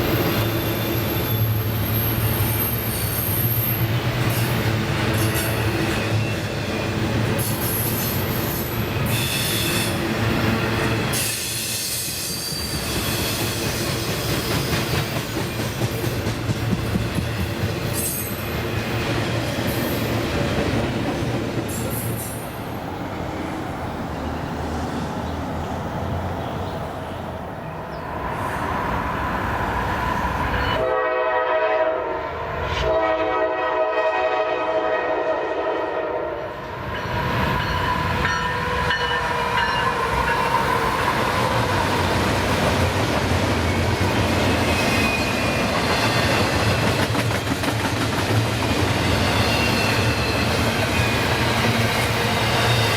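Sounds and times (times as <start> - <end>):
train wheels on rails: 0.0 - 52.9
high wheel squeals: 0.1 - 10.0, 10.6 - 13.6, 43.7 - 47.0, 49.0 - 51.6
locomotive air horn blasts: 30.8 - 32.2, 32.8 - 36.5.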